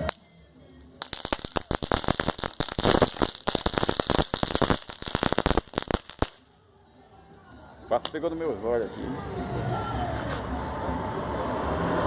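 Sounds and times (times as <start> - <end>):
firecrackers popping: 0.0 - 6.5.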